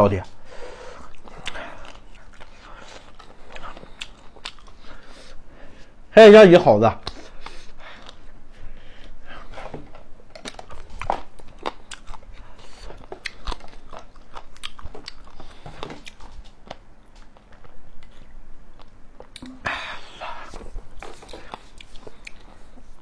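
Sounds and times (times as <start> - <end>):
wet crunchy mouth clicks: 1.0 - 4.8, 17.2 - 19.7, 21.0 - 22.6
chewing and biting food: 1.0 - 5.1, 7.0 - 8.3, 9.9 - 23.0.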